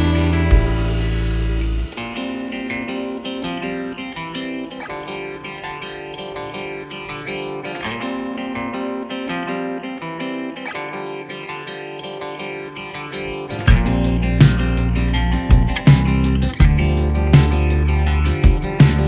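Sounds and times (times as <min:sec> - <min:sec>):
plucked guitar melody: 0:00.0 - 0:19.0.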